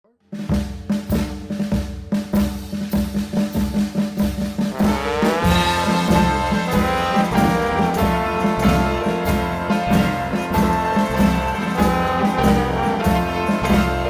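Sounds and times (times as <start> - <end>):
marching drum beat: 0.4 - 14.0
brass with sliding trombone: 4.5 - 14.0.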